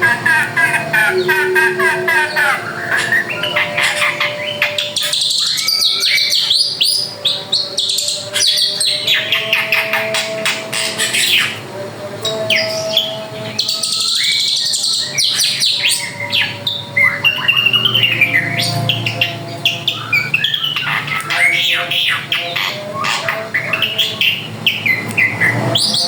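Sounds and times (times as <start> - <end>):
harsh buzzy bird phrase: 0.0 - 6.8, 14.7 - 26.0
bird song of chirps and whistles: 0.3 - 11.6, 12.3 - 26.0.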